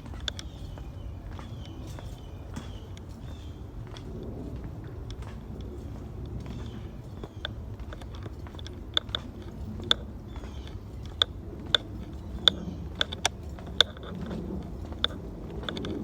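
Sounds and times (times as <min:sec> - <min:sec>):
footsteps crunching on dry trail: 0:00.0 - 0:16.0
low rumble: 0:03.2 - 0:16.0.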